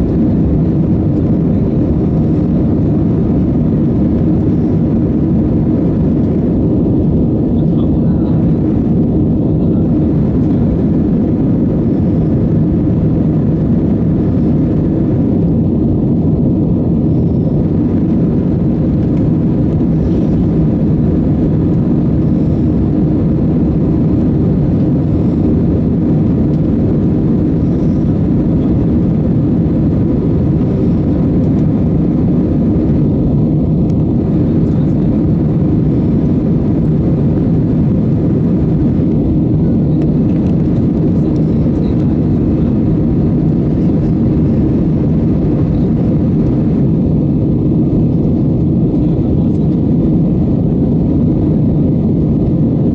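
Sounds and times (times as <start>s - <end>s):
faint hum: 0.0s - 52.9s
jet engine rush in cabin: 0.0s - 52.9s.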